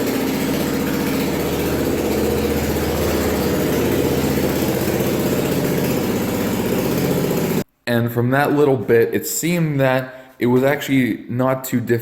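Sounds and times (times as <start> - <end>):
gas engine running steadily: 0.0 - 7.6.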